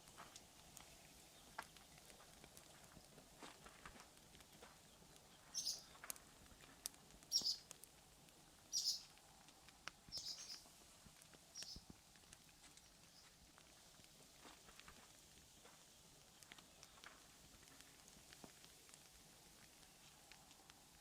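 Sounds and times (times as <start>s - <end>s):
small bird chirping: 4.8s - 6.0s, 7.3s - 7.7s, 8.7s - 9.2s, 10.1s - 10.6s, 11.5s - 11.9s.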